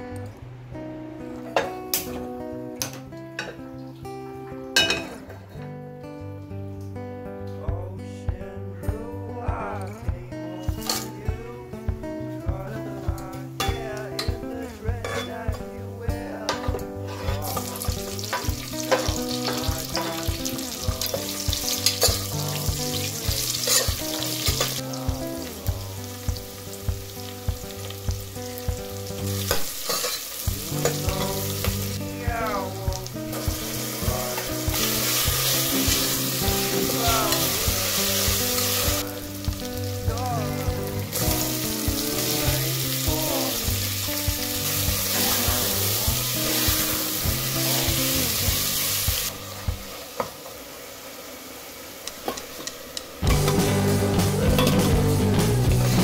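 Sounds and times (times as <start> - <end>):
background music with steady beat: 0.0 - 50.0, 53.2 - 56.0
food sizzling in a pan: 10.5 - 12.0, 12.6 - 56.0.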